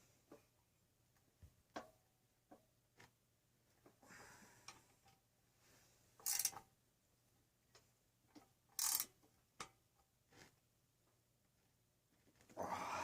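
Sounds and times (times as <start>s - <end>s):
tools clicking and tapping: 1.7s - 2.7s, 6.2s - 6.7s, 7.7s - 9.8s.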